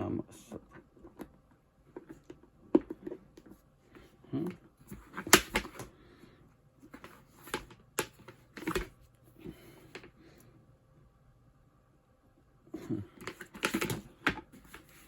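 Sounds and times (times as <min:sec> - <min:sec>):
plastic parts clicking and knocking: 0:04.5 - 0:05.9, 0:06.9 - 0:09.0, 0:13.2 - 0:15.0.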